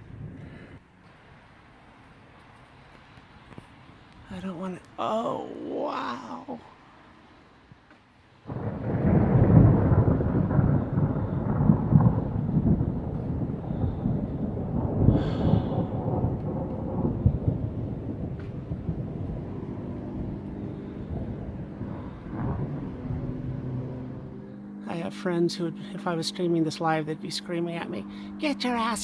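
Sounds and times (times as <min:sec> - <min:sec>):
thunder rumbling: 0:08.4 - 0:27.0.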